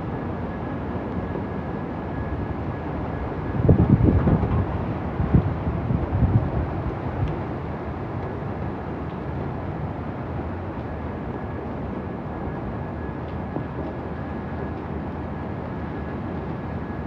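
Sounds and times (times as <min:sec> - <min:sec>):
hurricane wind and rain: 0:00.0 - 0:17.0
wind gusts buffeting microphone: 0:03.2 - 0:08.6.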